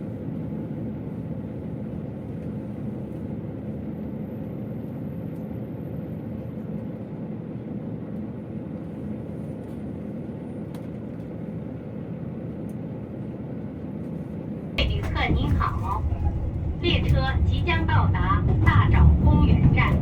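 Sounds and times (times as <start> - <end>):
railcar rumbling on rails: 0.0 - 20.0.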